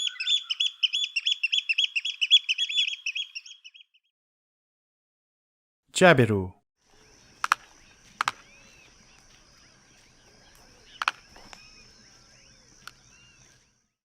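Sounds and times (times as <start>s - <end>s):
small birds chirping: 0.0s - 4.0s, 6.8s - 14.0s.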